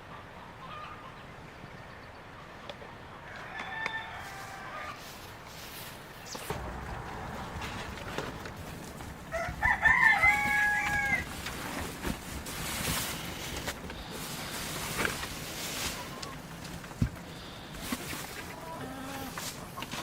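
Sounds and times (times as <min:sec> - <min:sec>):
rooster crowing: 0:03.2 - 0:05.1, 0:06.5 - 0:11.8.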